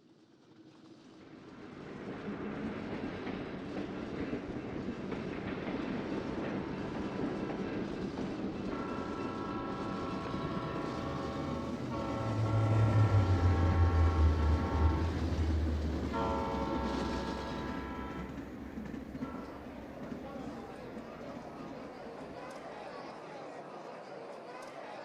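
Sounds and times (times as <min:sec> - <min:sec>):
diesel locomotive engine: 0:01.5 - 0:22.5
train wheels on rails: 0:01.5 - 0:22.8
locomotive air horn: 0:08.7 - 0:20.2.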